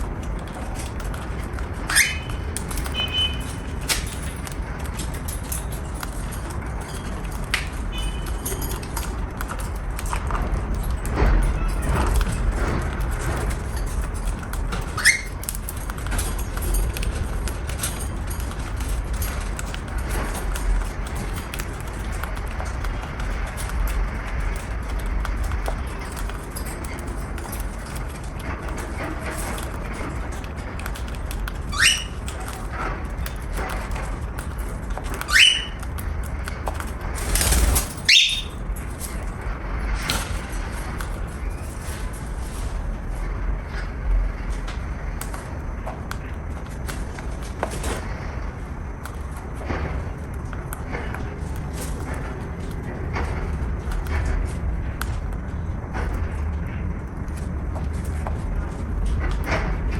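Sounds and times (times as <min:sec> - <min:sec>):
small clicks and scratches: 0:00.0 - 0:59.9
steady low rumble: 0:00.0 - 0:59.9
cockatiel rising calls: 0:35.2 - 0:35.8, 0:38.1 - 0:38.6
cockatiel rising chirp: 0:38.1 - 0:38.6.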